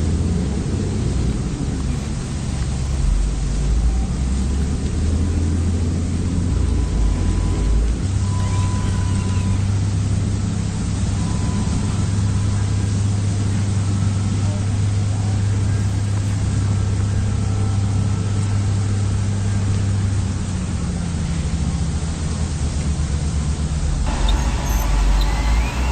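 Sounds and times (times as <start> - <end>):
model motors humming: 24.0 - 25.9
hiss: 24.1 - 25.9.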